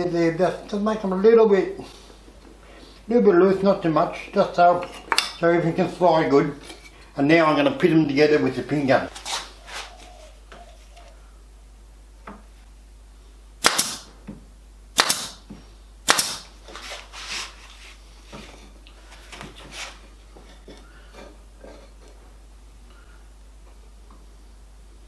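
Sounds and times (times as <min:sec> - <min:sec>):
pin gun firing: 0:13.6 - 0:14.1, 0:15.0 - 0:15.4, 0:16.0 - 0:16.5.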